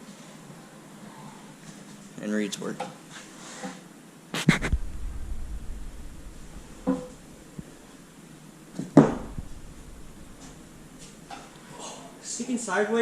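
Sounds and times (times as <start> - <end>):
low rumble: 4.5 - 8.2, 9.1 - 11.3.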